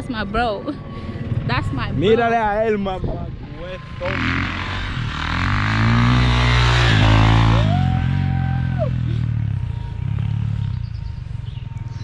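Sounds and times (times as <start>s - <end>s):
dirt bike engine revving: 3.8s - 12.0s.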